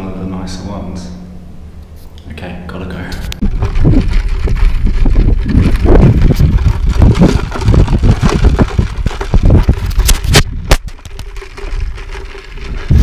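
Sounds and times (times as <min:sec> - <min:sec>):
wind buffeting microphone: 0:03.3 - 0:13.0.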